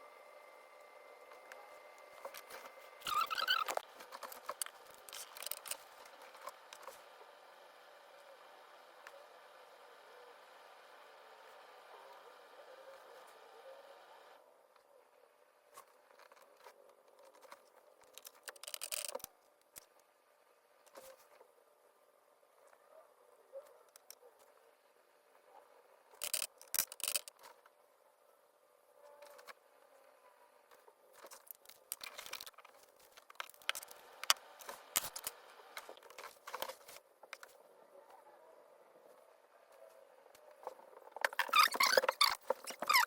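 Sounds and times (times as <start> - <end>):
crinkling and rustling: 1.3 - 7.0, 30.7 - 37.6, 39.8 - 43.0
light scratching: 2.1 - 7.0, 40.6 - 43.0.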